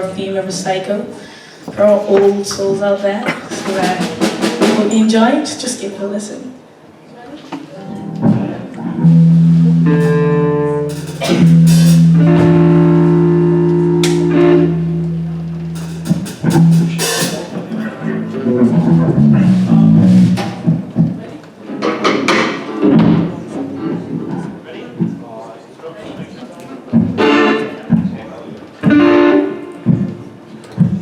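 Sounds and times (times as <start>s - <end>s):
live band playing: 3.4s - 5.7s, 7.8s - 21.2s, 27.0s - 28.2s, 28.8s - 31.0s
cymbal crashes: 9.1s - 17.8s.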